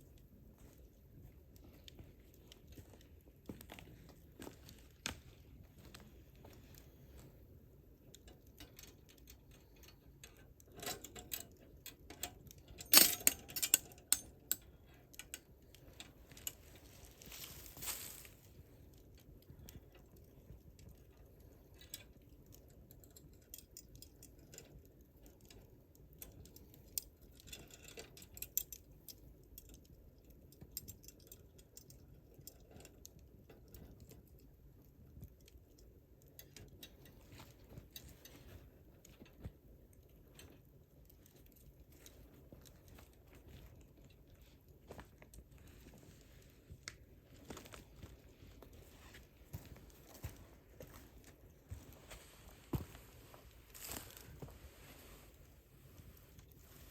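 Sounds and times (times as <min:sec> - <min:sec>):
campfire crackling and popping: 0:11.5 - 0:27.5, 0:28.2 - 0:38.1.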